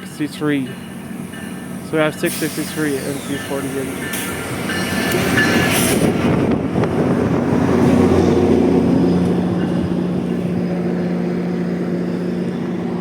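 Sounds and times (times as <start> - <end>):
diesel locomotive idling: 0.0 - 13.0.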